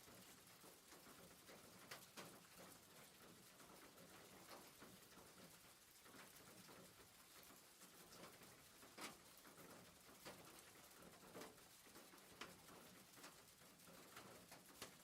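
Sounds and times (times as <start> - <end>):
faint steady rain: 0.0 - 15.0.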